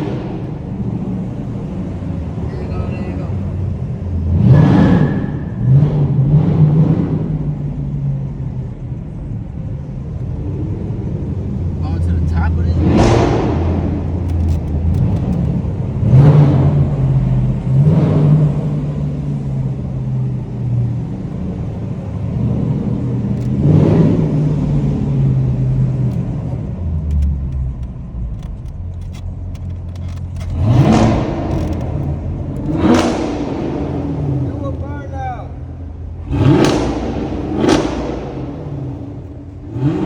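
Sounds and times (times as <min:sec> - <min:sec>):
engine revs blipped: 0:00.0 - 0:08.5, 0:10.4 - 0:26.5, 0:30.4 - 0:40.0
car engines idling: 0:00.0 - 0:40.0.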